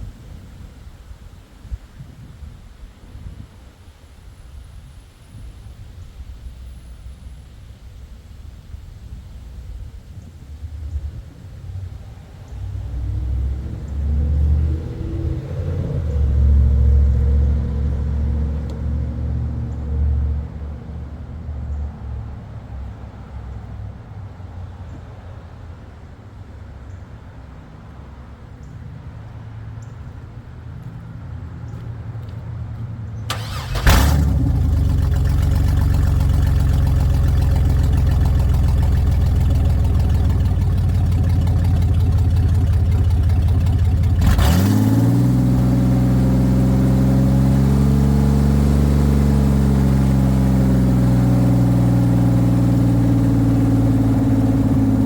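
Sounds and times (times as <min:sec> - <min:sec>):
engine running loud: 0:33.3 - 0:55.0.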